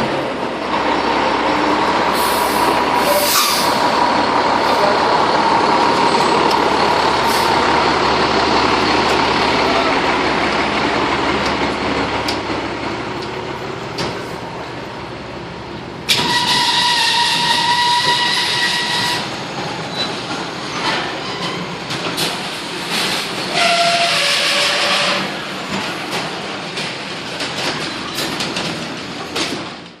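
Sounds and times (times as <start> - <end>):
street traffic noise: 0.0 - 30.0
fire engine air horn blasts: 2.2 - 3.8, 16.1 - 19.2, 23.5 - 25.4.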